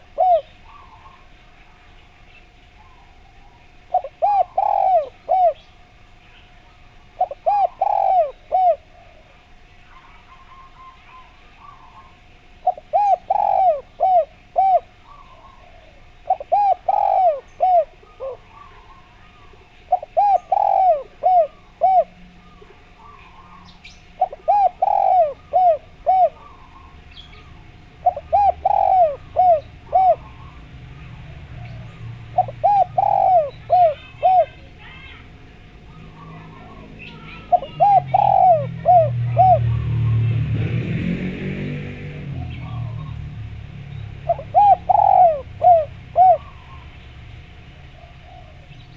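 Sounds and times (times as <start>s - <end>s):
dove cooing: 0.0s - 48.9s
small birds chirping: 0.0s - 48.9s.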